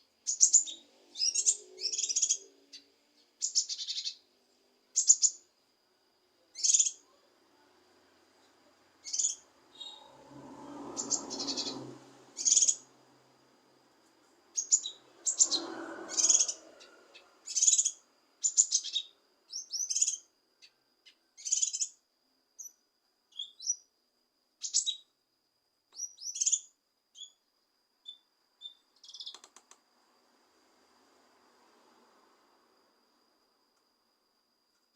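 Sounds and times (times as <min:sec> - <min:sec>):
bird chirping: 0:00.0 - 0:04.3, 0:04.9 - 0:05.5, 0:06.5 - 0:07.2, 0:09.0 - 0:12.9, 0:14.5 - 0:22.0, 0:22.6 - 0:23.9, 0:24.6 - 0:25.1, 0:25.9 - 0:27.4, 0:28.0 - 0:29.6.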